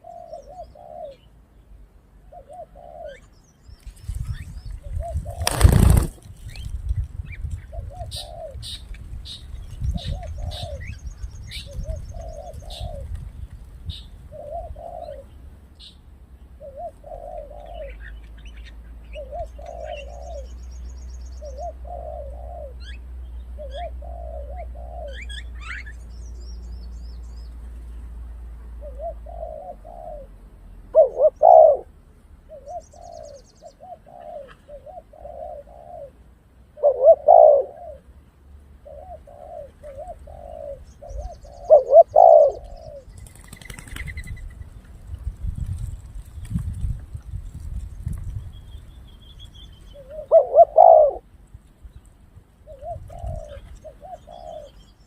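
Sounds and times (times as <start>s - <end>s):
dove cooing: 0.0s - 1.3s, 2.2s - 3.3s, 4.8s - 6.2s, 7.6s - 13.2s, 13.9s - 15.4s, 16.6s - 18.3s, 19.1s - 20.6s, 21.4s - 23.0s, 23.6s - 26.0s, 28.8s - 38.1s, 38.8s - 44.3s, 49.9s - 51.3s, 52.6s - 54.9s
small birds chirping: 0.0s - 28.2s, 28.8s - 36.2s, 36.8s - 55.0s.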